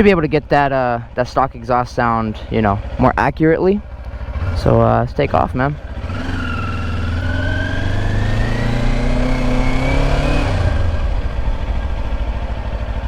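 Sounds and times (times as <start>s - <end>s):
motorcycle engine pulling away: 3.8s - 13.0s.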